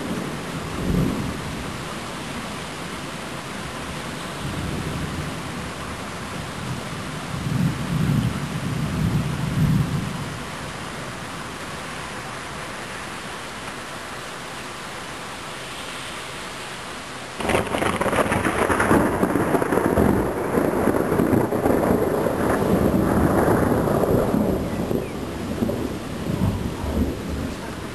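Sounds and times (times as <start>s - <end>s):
rain hiss: 0.0s - 27.9s
loud thunder crash: 17.4s - 27.5s
thunder rumbling: 17.4s - 27.9s.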